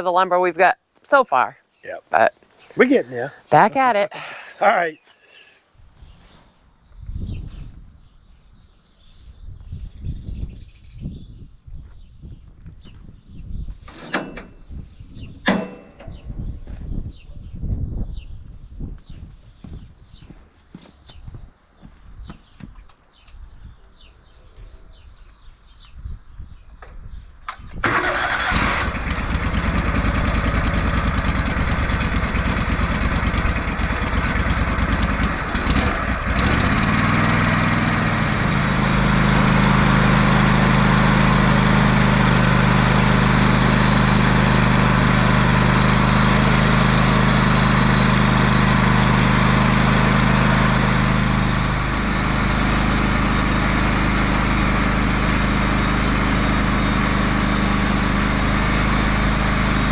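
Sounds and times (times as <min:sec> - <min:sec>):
sawmill engine running: 0:01.9 - 0:05.0, 0:27.8 - 0:59.9.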